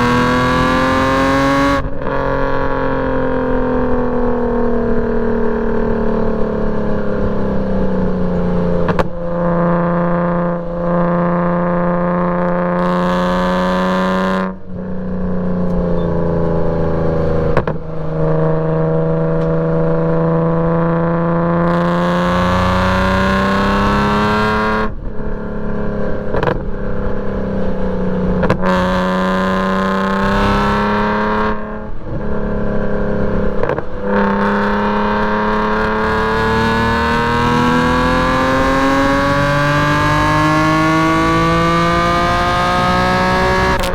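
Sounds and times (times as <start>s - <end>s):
race car engine with gear changes: 0.0s - 43.9s.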